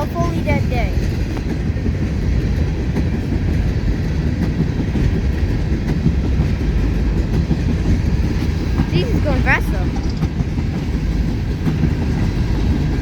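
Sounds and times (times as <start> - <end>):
freight train rumbling on rails: 0.0 - 13.0
faint clicks: 9.9 - 10.5.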